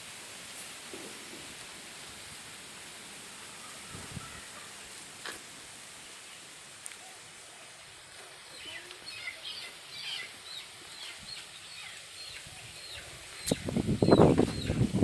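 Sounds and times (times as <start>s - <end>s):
outdoor background noise: 0.0s - 15.0s
birds chirping: 3.3s - 15.0s.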